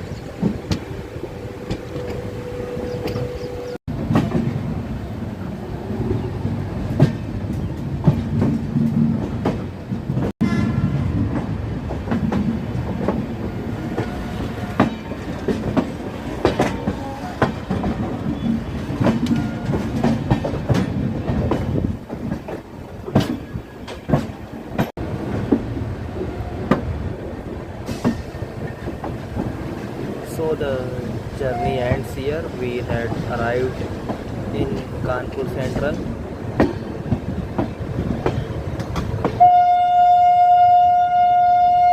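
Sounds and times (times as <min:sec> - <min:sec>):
train rumble: 0:00.0 - 0:41.9
train wheels clattering over rail joints: 0:11.2 - 0:25.8, 0:32.2 - 0:39.4.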